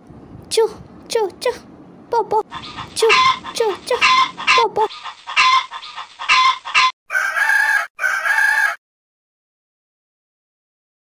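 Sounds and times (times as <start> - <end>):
chicken bright calls: 2.4 - 8.8
chicken clucking: 2.4 - 8.8.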